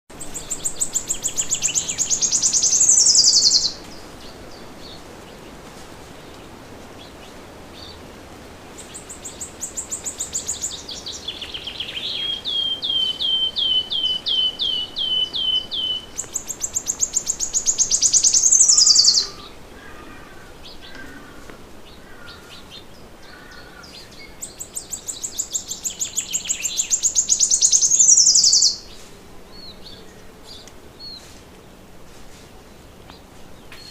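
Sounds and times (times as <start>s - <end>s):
songbird trilling: 0.2s - 4.7s, 8.9s - 21.4s, 22.1s - 29.0s
soft bird chirps: 0.2s - 5.5s, 8.8s - 19.5s, 24.0s - 31.4s.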